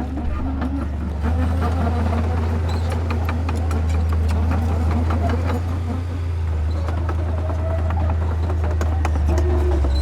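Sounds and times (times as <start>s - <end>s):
diesel machine humming: 0.0s - 10.0s.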